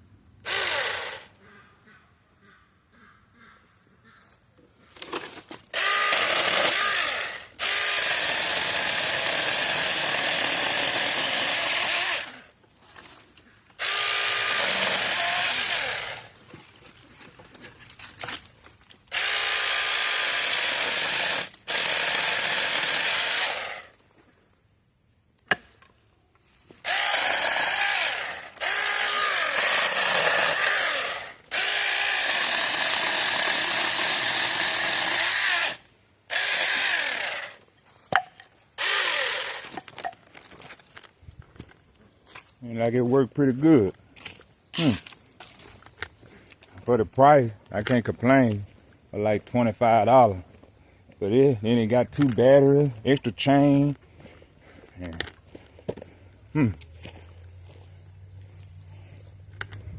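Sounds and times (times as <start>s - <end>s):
mini chainsaw cutting wood: 0.4s - 1.3s, 5.7s - 12.5s, 13.8s - 16.4s, 19.1s - 24.0s, 26.8s - 37.7s, 38.8s - 40.0s.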